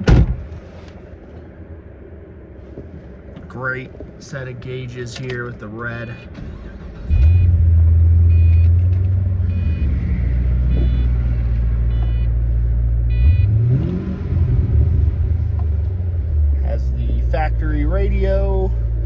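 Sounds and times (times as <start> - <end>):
car engine starting and idling: 0.0 - 19.0
car warning chime: 5.0 - 6.4, 8.3 - 8.8, 9.5 - 12.4, 13.1 - 13.9.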